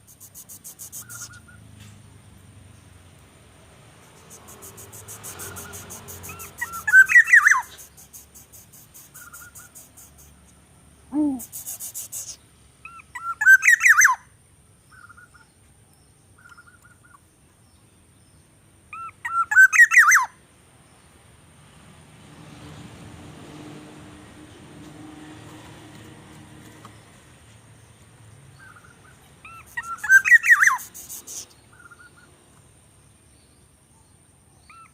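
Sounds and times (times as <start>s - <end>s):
fast high ticking: 4.1s - 10.4s
bird chirping phrase: 4.2s - 10.4s.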